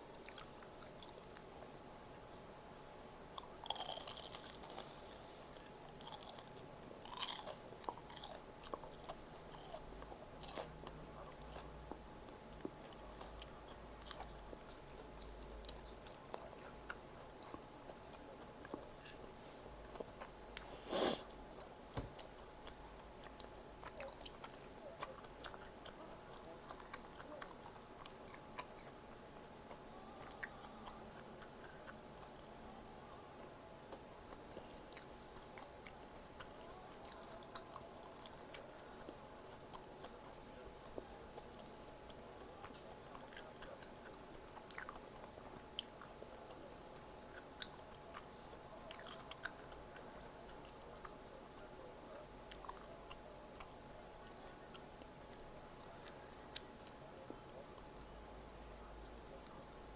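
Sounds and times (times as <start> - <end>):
person chewing snack food: 0.0 - 2.5, 3.3 - 32.5, 33.9 - 51.8, 52.4 - 57.3.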